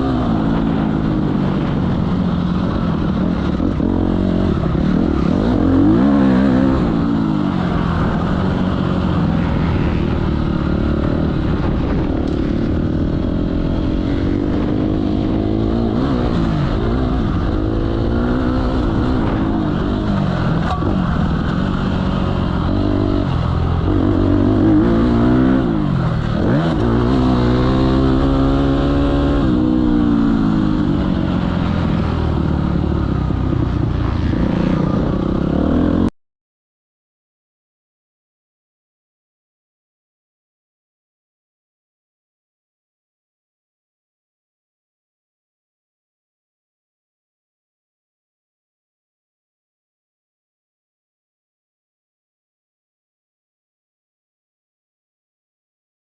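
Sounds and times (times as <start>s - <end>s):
motocross bike engines revving: 0.0s - 36.1s.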